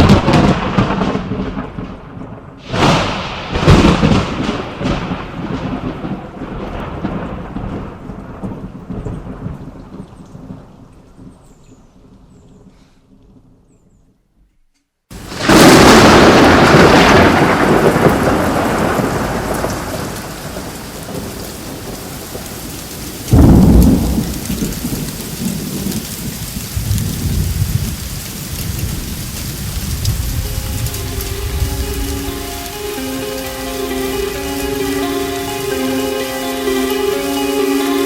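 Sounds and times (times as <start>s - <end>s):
thunderclaps: 0.0s - 10.9s, 15.1s - 37.2s
low rumbling thunder: 0.0s - 11.4s, 15.2s - 32.7s
steady rain: 0.0s - 13.4s, 15.1s - 38.0s.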